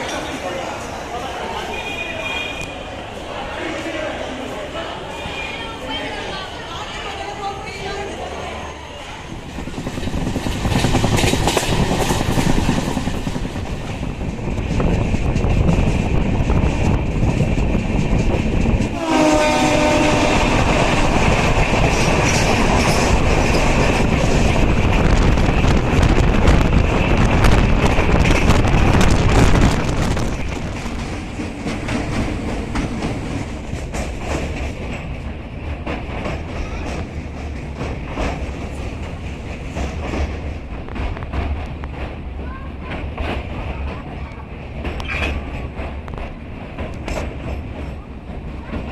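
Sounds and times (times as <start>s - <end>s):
train wheels rumbling on rails: 0.0s - 48.9s
train horn: 18.9s - 21.0s.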